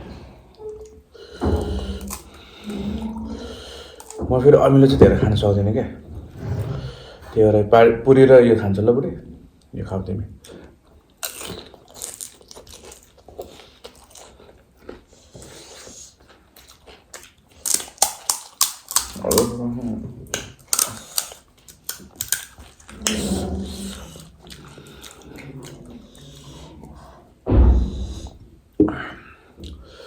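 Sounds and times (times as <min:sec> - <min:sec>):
low vocal sounds: 0:01.4 - 0:07.6, 0:19.2 - 0:20.6, 0:22.9 - 0:29.8
crisp shells crunching and chewing: 0:01.5 - 0:03.0, 0:11.1 - 0:19.6, 0:20.3 - 0:26.7.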